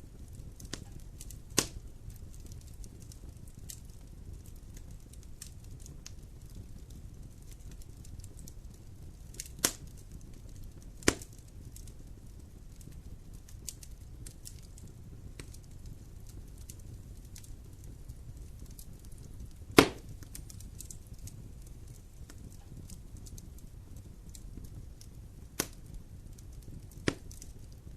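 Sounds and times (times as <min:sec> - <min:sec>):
fire crackling in fireplace: 0:00.0 - 0:27.9
sharp pops of fire: 0:00.0 - 0:27.9.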